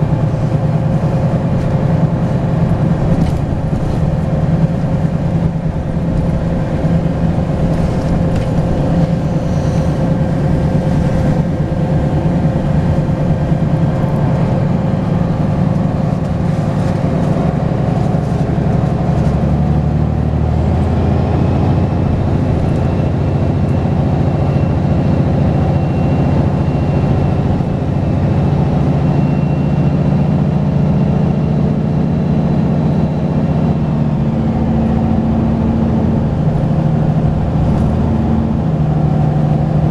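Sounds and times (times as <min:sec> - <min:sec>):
bus diesel engine running: 0:00.0 - 0:39.9
high turbo whistle: 0:09.2 - 0:12.0.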